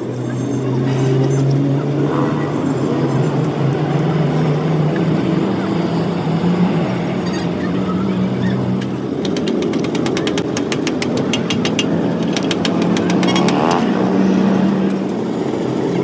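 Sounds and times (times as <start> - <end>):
engine running steadily: 0.0 - 16.0
sharp clicks: 8.8 - 15.2.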